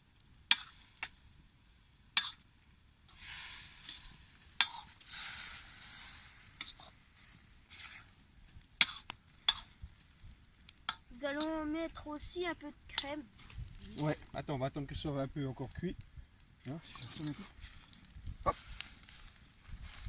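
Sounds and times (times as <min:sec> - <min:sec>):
bacon sizzling in a wok: 0:00.0 - 0:15.9, 0:16.5 - 0:20.0
scraping in a wok: 0:00.5 - 0:01.0, 0:02.2 - 0:02.4, 0:03.1 - 0:08.2, 0:08.8 - 0:10.0, 0:16.8 - 0:20.0.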